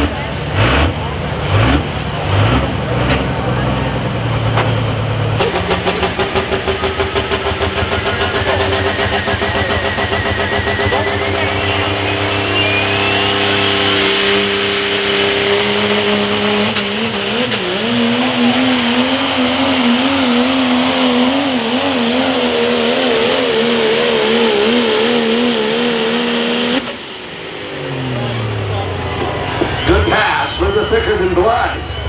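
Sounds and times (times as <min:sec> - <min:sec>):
diesel truck engine at full throttle: 0:00.0 - 0:32.0
high whine: 0:09.0 - 0:32.0.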